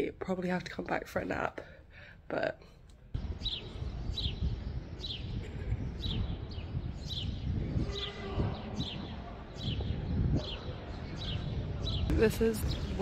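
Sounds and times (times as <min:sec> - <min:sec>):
bird chirping: 0:03.2 - 0:13.0.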